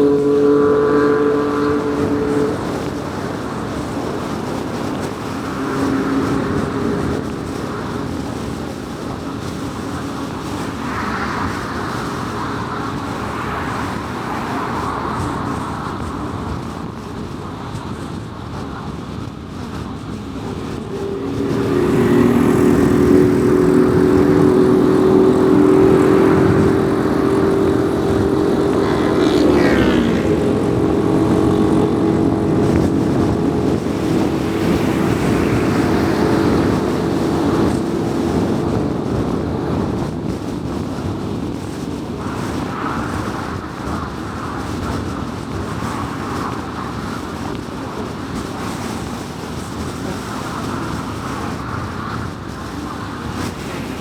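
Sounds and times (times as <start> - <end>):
low humming drone: 0.0 - 10.8, 20.0 - 39.8
road and tyre noise: 0.0 - 54.0.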